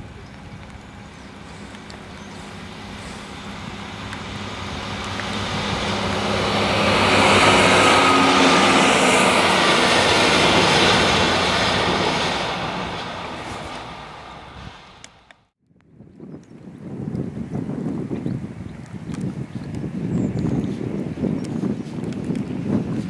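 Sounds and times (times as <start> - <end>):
diesel train passing: 0.0 - 15.5.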